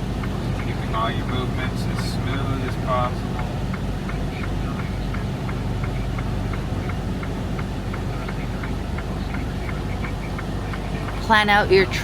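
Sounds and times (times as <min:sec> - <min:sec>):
light ticking: 0:00.0 - 0:12.0
truck engine drone: 0:00.0 - 0:12.0.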